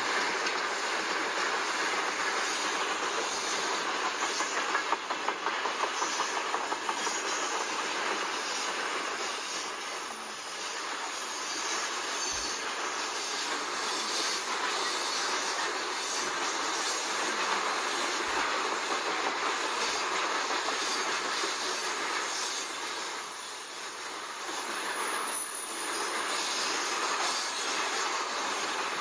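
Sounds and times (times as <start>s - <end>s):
freight train wheels on rail: 0.0s - 29.0s.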